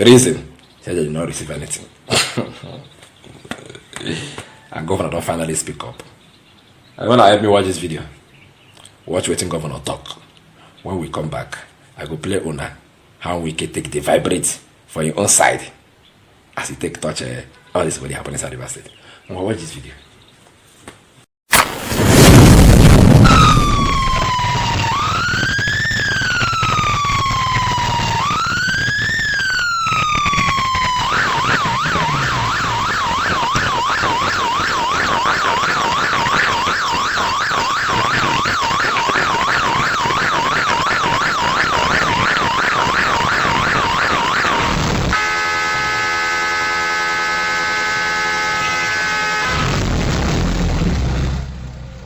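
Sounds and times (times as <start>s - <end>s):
electronic vehicle siren: 23.2s - 49.9s
horn blast: 23.2s - 50.6s.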